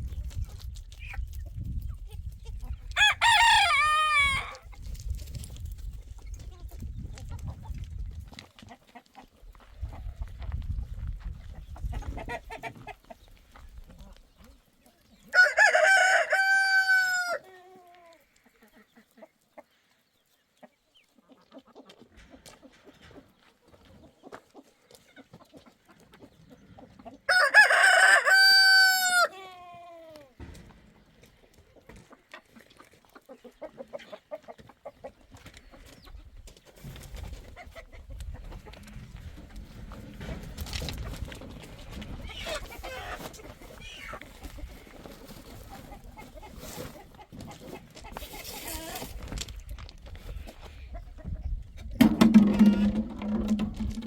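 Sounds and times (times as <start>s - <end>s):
rooster crowing: 3.0s - 4.6s, 15.3s - 17.4s, 27.3s - 29.4s.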